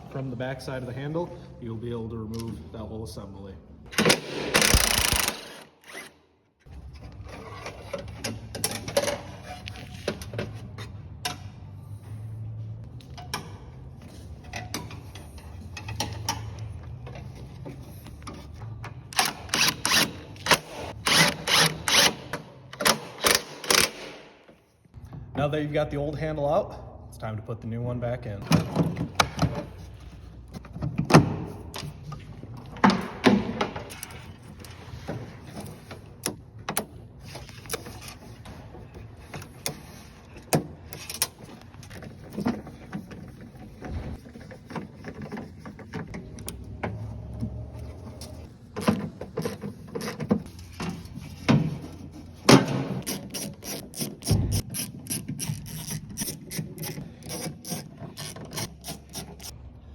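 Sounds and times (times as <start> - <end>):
ratchet wrench clicking: 4.6 - 5.5, 53.0 - 59.5.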